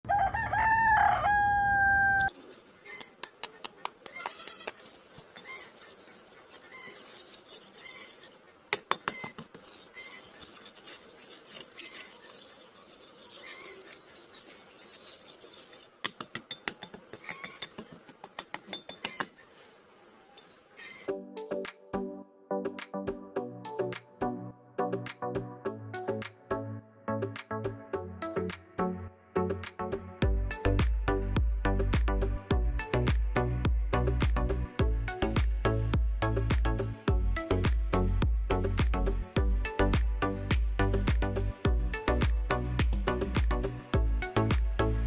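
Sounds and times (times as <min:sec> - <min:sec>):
rooster crowing: 0:00.0 - 0:02.3.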